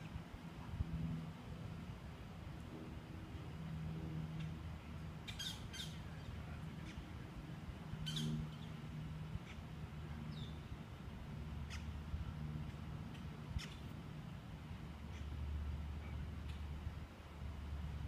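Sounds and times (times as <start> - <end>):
birds squawking and chirping: 5.2 - 7.0, 8.0 - 8.8, 11.6 - 12.0.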